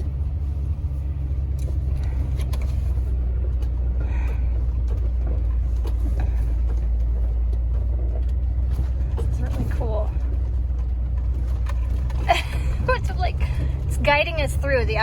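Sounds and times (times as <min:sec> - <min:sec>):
engine and road rumble: 0:00.0 - 0:15.0
faint clicks and knocks: 0:01.5 - 0:12.4.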